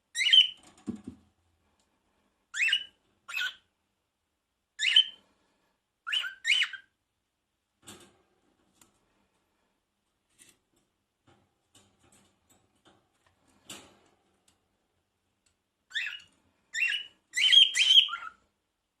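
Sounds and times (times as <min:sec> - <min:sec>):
parrot chirping calls: 0:02.5 - 0:03.7, 0:04.8 - 0:05.2, 0:06.0 - 0:06.9, 0:15.9 - 0:18.4.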